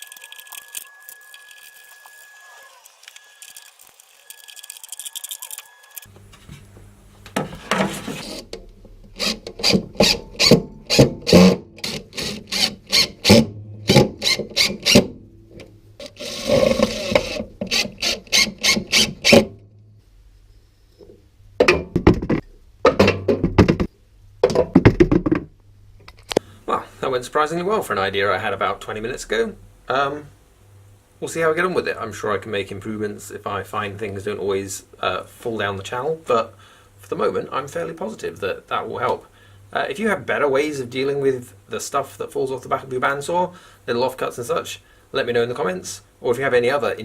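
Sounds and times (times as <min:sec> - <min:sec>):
low steady hum: 0:06.1 - 0:18.4, 0:19.3 - 0:47.0
wood scraping and knocking: 0:07.3 - 0:08.3, 0:21.6 - 0:25.5.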